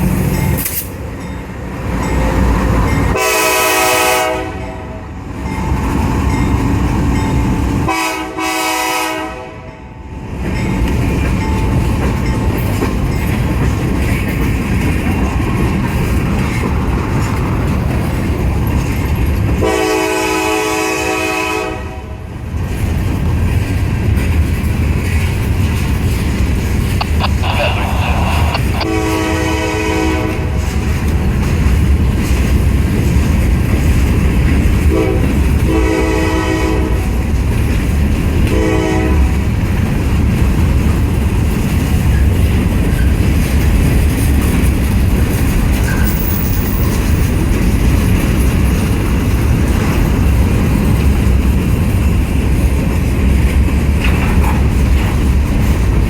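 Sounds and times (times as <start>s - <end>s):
train rumbling on rails: 0.0s - 56.0s
locomotive air horn blasts: 3.1s - 5.0s, 7.9s - 9.7s, 19.6s - 22.1s, 27.3s - 30.6s, 34.9s - 37.0s, 38.5s - 39.3s.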